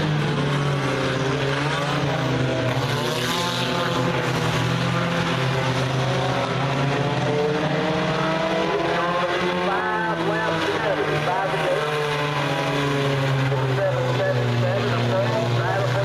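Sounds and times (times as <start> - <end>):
race car engines: 0.0 - 16.0.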